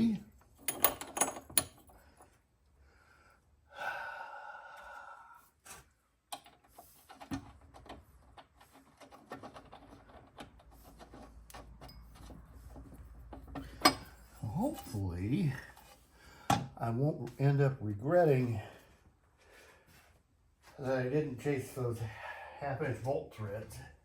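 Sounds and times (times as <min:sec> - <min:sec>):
light clicks and taps of parts: 0:05.7 - 0:14.4.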